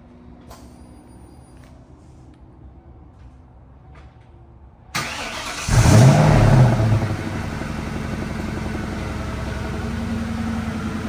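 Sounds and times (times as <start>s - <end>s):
car engine revving and idling: 5.0s - 11.0s.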